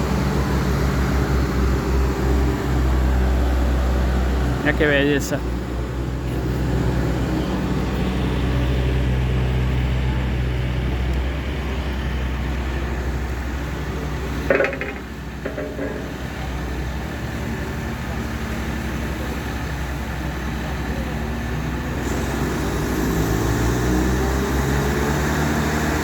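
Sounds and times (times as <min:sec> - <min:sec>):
engine running with low hum: 0:00.0 - 0:26.0.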